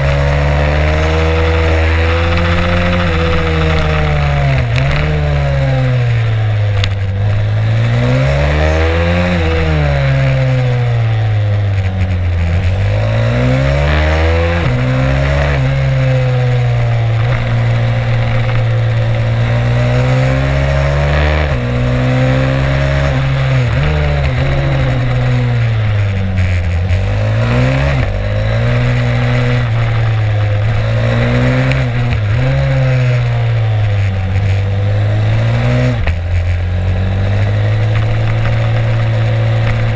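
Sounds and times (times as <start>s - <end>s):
pit bike engine revving: 0.0s - 39.9s
wind and road noise: 0.0s - 39.9s.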